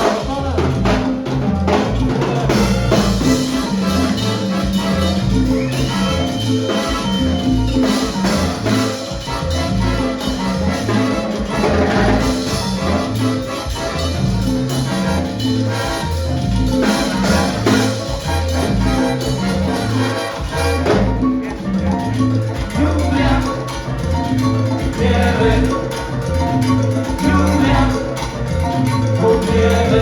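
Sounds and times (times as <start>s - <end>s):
repeating bass line: 0.0s - 30.0s
salsa band playing live: 0.0s - 30.0s
horns: 2.5s - 21.6s.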